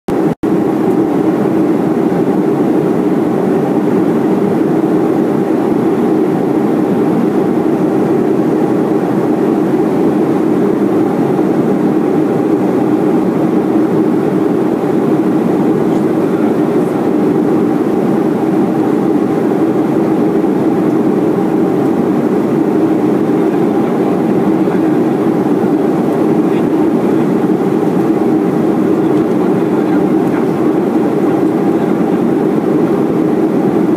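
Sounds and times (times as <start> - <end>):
airflow rushing past cabin: 0.1 - 33.9
airplane cabin engine rumble: 0.1 - 33.9.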